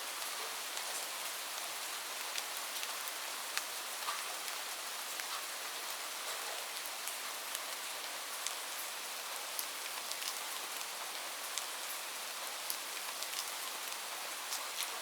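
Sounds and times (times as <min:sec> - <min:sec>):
light rain hiss: 0:00.0 - 0:15.0
raindrops ticking on a surface: 0:00.1 - 0:15.0.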